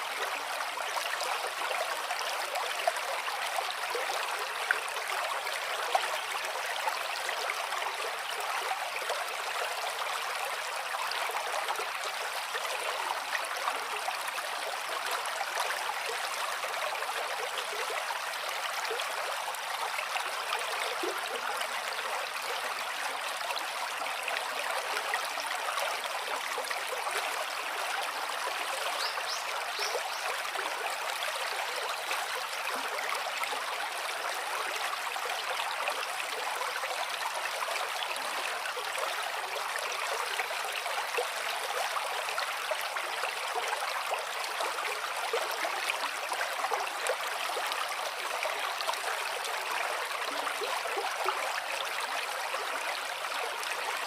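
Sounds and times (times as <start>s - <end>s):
gently flowing water: 0.0s - 54.0s.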